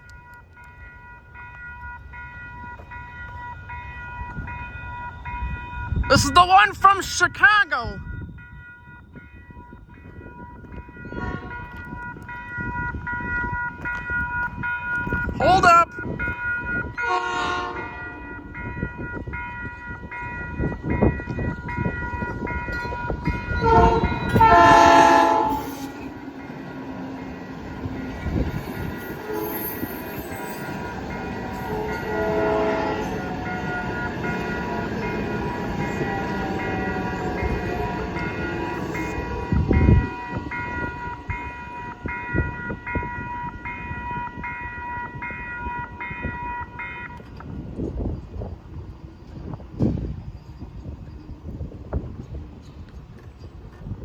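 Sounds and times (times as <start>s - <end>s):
crossing warning bells ringing: 0.0s - 54.0s
train horn: 11.0s - 11.8s, 17.0s - 18.3s, 23.5s - 26.1s, 29.0s - 30.3s, 31.6s - 33.3s.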